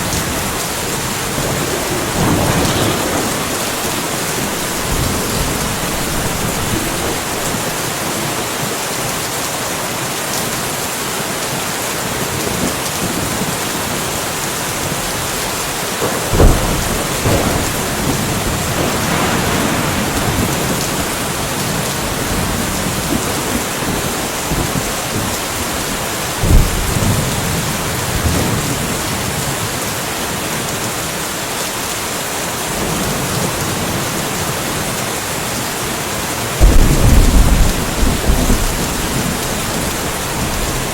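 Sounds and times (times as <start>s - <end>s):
thunderclap with low rumble: 0.0s - 8.6s, 14.8s - 29.9s, 36.6s - 40.9s
steady rainfall: 0.0s - 40.9s.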